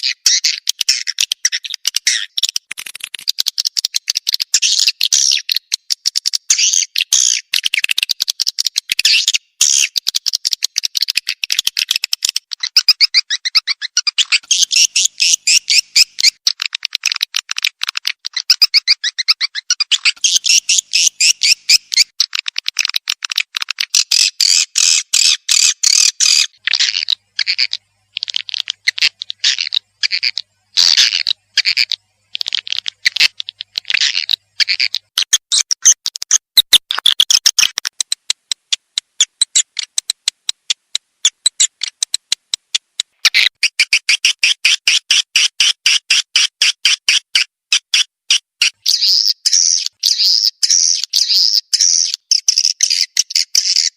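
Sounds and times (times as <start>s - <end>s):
twittering high bird chirps: 0.0s - 17.2s, 18.2s - 22.2s, 23.9s - 36.0s, 47.7s - 53.9s.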